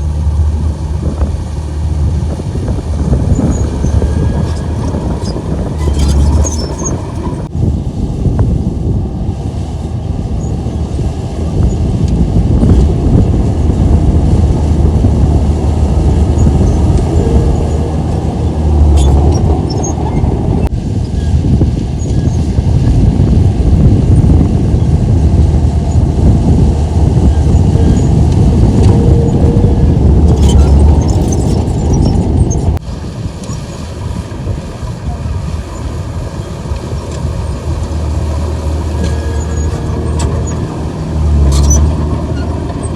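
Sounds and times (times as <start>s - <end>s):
bulldozer diesel engine rumbling: 0.0s - 42.9s.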